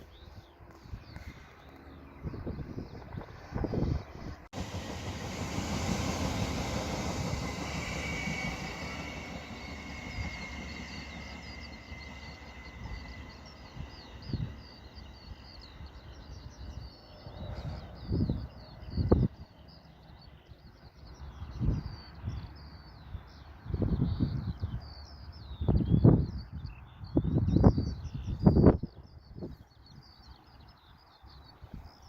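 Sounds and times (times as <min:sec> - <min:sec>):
train passing: 0:00.2 - 0:25.4.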